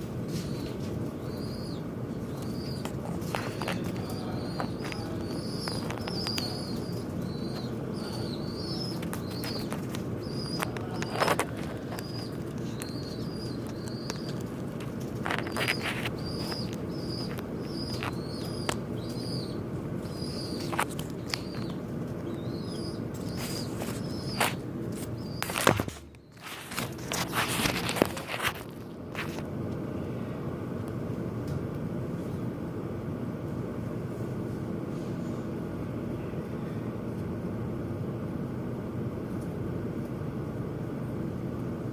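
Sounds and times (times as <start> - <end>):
small birds chirping: 0.3 - 29.4.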